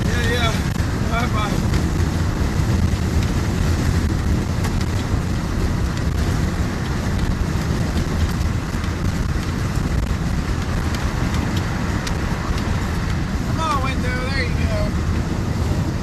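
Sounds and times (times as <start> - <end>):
road noise inside truck cab: 0.0 - 16.0
wind rush through open window: 0.0 - 16.0.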